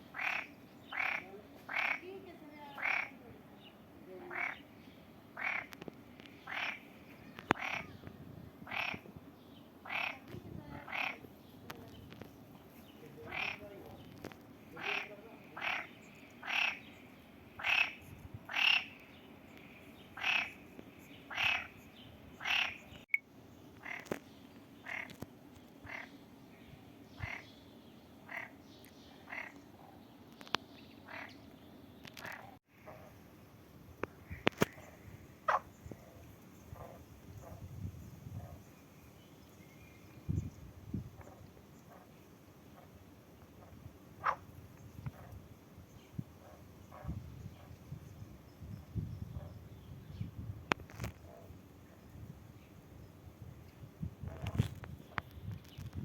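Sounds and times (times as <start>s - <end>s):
frogs croaking: 0.1s - 2.2s, 2.8s - 3.2s, 4.2s - 4.7s, 5.3s - 8.0s, 8.6s - 9.1s, 9.8s - 11.3s, 13.2s - 23.0s, 23.8s - 24.2s, 24.8s - 26.2s, 27.2s - 27.5s, 28.2s - 28.6s, 29.2s - 30.0s, 31.0s - 31.4s, 34.0s - 37.6s, 43.6s - 44.5s.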